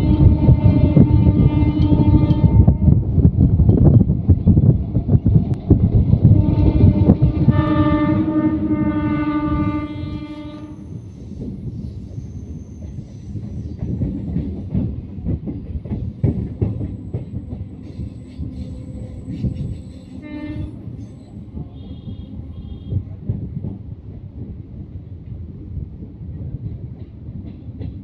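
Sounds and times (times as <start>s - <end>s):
train horn: 0.0s - 3.0s, 6.3s - 11.0s, 17.9s - 23.2s
train rumbling along track: 0.0s - 28.0s.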